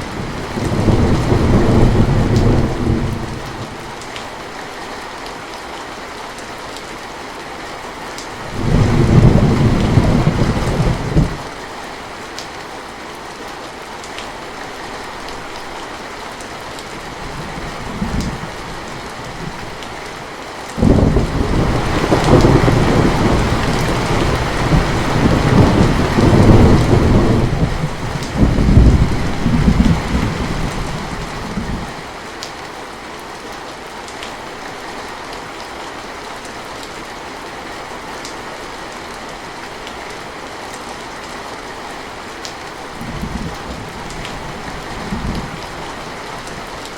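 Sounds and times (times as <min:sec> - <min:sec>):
steady rain falling: 0:00.0 - 0:46.9
thunder rolling: 0:00.2 - 0:03.5, 0:08.5 - 0:11.4, 0:20.8 - 0:31.9.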